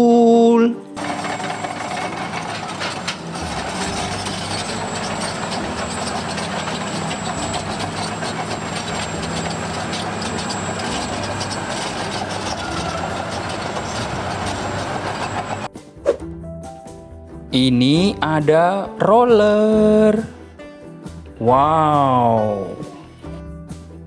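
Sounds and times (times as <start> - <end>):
toy vehicle rattling engine: 1.0 - 15.7.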